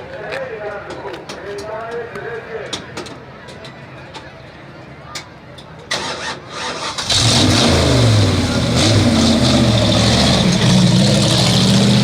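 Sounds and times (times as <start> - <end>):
race truck engine revving: 5.9 - 12.0.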